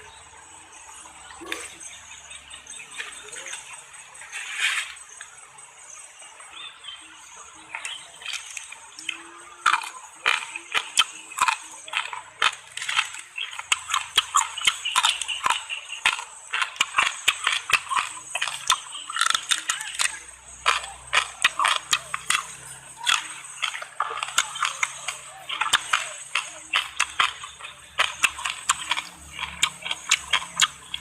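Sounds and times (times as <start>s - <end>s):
person chewing crunchy food: 7.6s - 31.0s.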